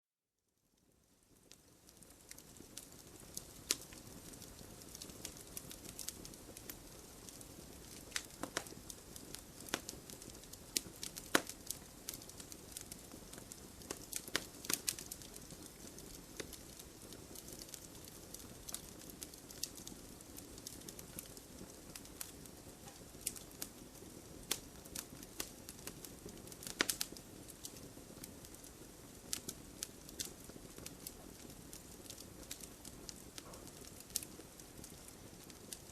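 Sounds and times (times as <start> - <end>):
fireplace fire crackling: 0.5 - 35.9.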